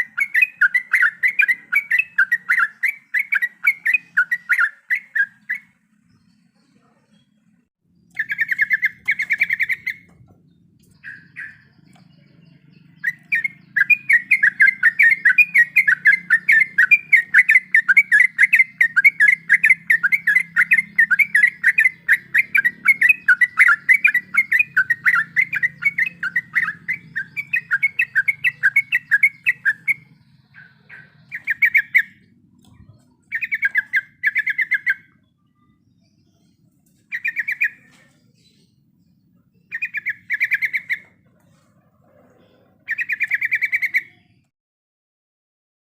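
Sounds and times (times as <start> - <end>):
bulbul singing chattering runs: 0.0 - 41.3.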